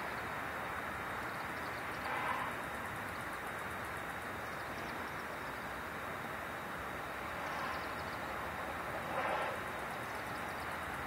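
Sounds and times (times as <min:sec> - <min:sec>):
steady rushing background noise: 0:00.0 - 0:11.0
swifts twittering: 0:01.1 - 0:05.8, 0:07.3 - 0:11.0.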